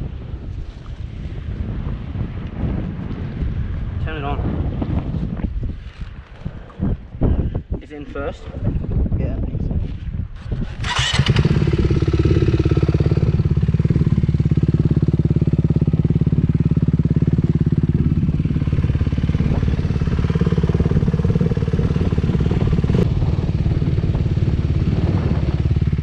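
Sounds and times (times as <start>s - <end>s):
dirt bike engine running: 10.3s - 26.0s.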